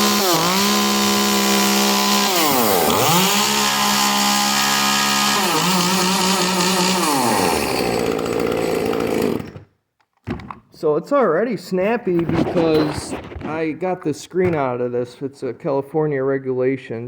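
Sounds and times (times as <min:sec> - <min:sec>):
chainsaw engine revving: 0:00.0 - 0:09.6.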